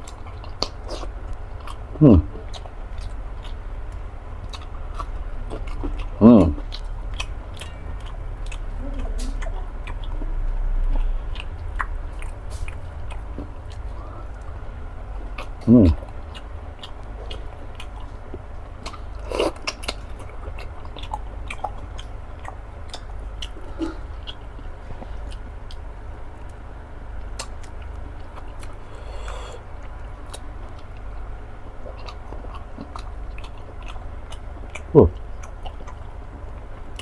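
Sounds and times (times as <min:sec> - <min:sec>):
wet chewing mouth clicks: 0:00.0 - 0:14.5, 0:15.3 - 0:25.8, 0:27.2 - 0:31.2
person humming: 0:02.0 - 0:02.3, 0:15.7 - 0:16.0.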